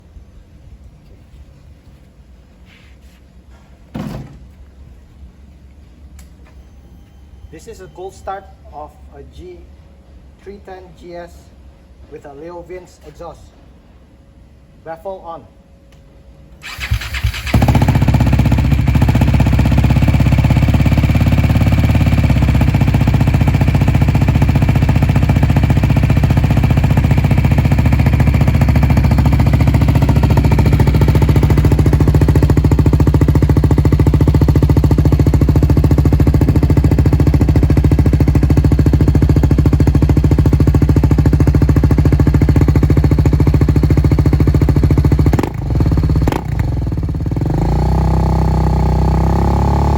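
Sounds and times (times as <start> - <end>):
motorcycle engine idling: 16.6 - 49.9.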